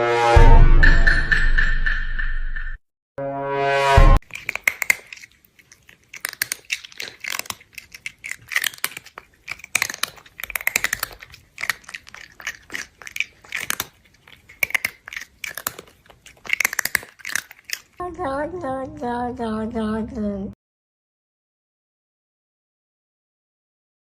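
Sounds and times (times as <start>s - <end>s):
crinkling: 4.2s - 18.0s
crunchy chewing: 4.2s - 18.0s.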